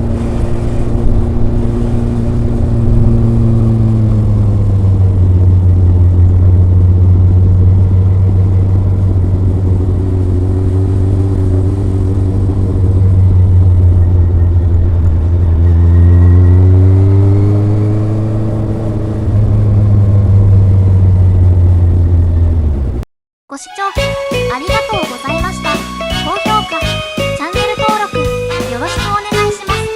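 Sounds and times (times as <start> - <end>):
motorcycle exhaust while riding: 0.0 - 23.0.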